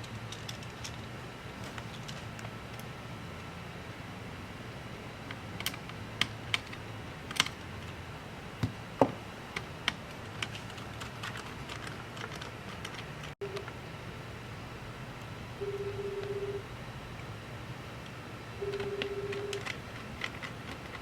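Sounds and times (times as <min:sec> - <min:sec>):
steady low hum: 0:00.0 - 0:21.0
computer keys typing: 0:10.4 - 0:13.8, 0:18.6 - 0:21.0.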